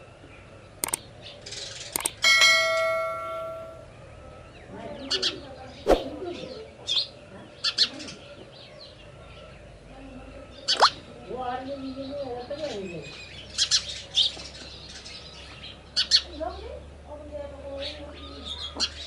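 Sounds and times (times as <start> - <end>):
sparrows chirping: 0.1 - 19.0
bell-like metallic ring: 2.2 - 4.0.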